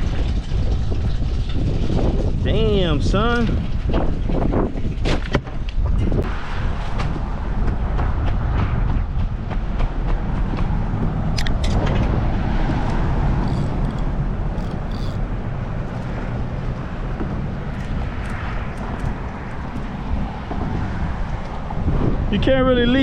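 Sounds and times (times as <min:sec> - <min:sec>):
wind rumble: 0:00.0 - 0:23.0
road traffic: 0:06.2 - 0:22.3
brief clicks: 0:11.4 - 0:11.8.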